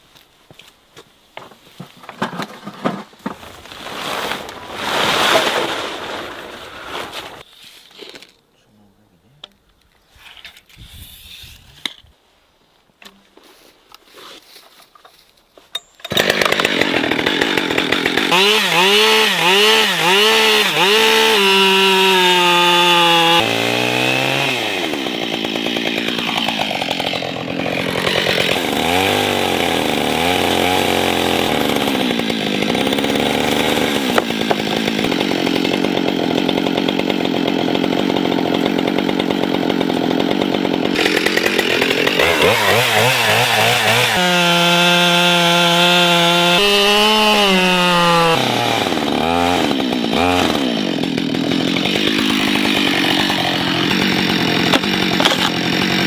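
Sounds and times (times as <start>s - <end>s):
chainsaw revving and cutting wood: 16.1s - 56.0s.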